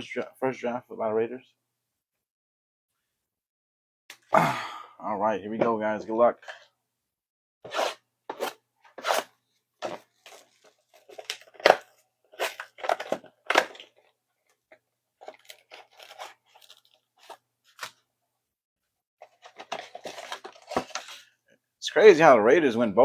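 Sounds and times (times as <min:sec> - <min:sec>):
foil wrapper tearing and crinkling: 0:15.2 - 0:18.0.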